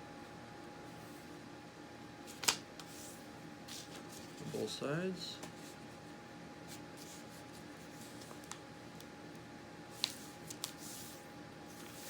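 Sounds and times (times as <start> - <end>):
paper rustling and creasing: 2.3 - 4.6, 6.7 - 8.6, 9.9 - 12.0.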